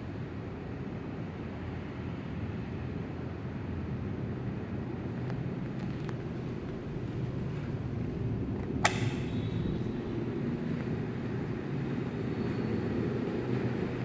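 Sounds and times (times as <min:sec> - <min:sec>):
ceiling fan running: 0:05.0 - 0:14.0
sharp click: 0:08.8 - 0:10.0.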